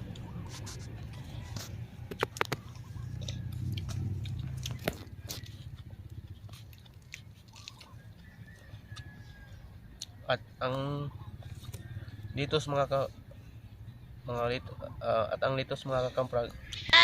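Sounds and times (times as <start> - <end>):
crunching raw vegetables: 0.0 - 10.2.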